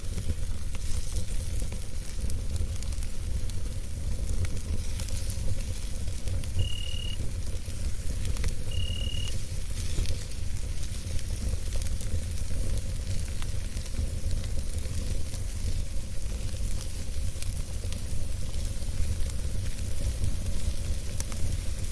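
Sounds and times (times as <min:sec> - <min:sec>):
campfire burning: 0:00.0 - 0:21.9
fire crackles and pops: 0:00.0 - 0:21.9
short high tones: 0:06.6 - 0:07.2, 0:08.7 - 0:09.3.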